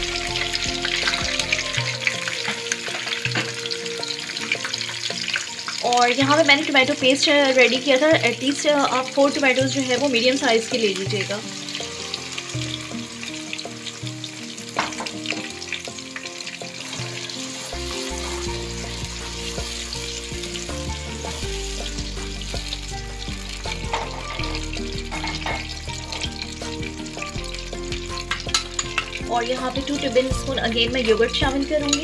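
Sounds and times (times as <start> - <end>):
tomato paste sizzling in oil: 0.0 - 32.0
spatula scraping a pan: 9.6 - 23.0, 23.7 - 27.4.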